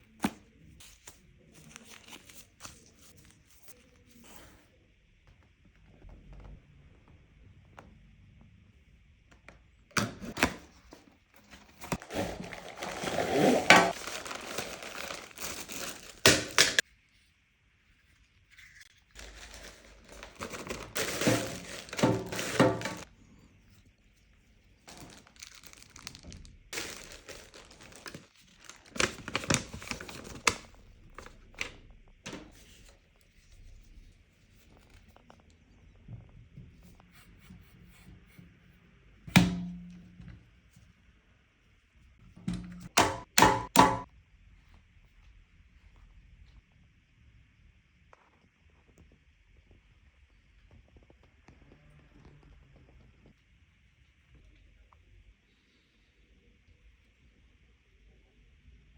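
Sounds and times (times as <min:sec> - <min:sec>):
plastic packaging crinkling and tearing: 0:11.4 - 0:16.8, 0:18.7 - 0:23.1, 0:24.8 - 0:31.7.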